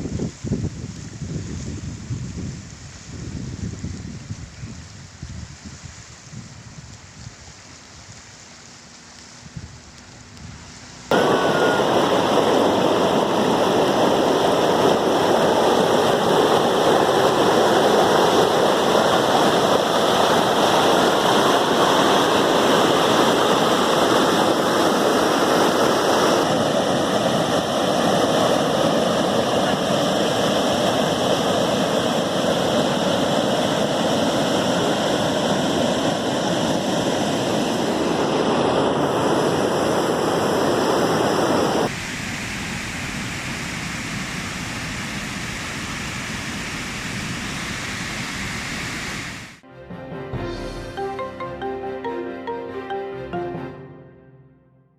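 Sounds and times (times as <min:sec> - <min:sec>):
river water rushing: 0:11.1 - 0:42.0.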